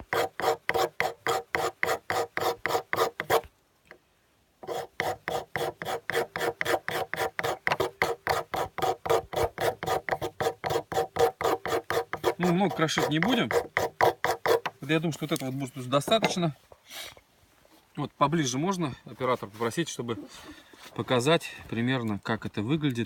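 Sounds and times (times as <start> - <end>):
knife scraping wood: 0.0 - 3.5, 4.6 - 17.2.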